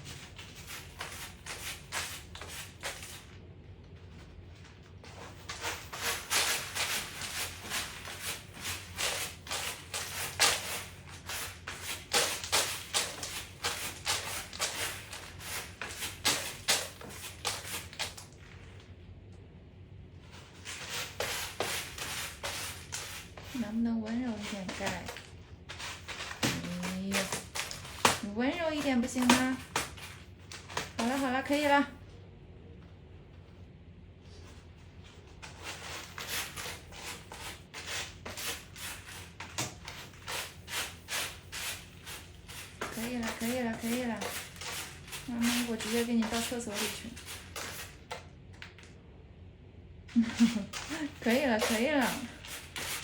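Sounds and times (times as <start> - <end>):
cat scratching litter: 0.0 - 19.2, 20.0 - 32.1, 34.2 - 49.0, 50.0 - 53.0
towel rubbing wet fur: 5.1 - 18.3, 20.5 - 30.2, 35.6 - 48.1, 50.2 - 53.0.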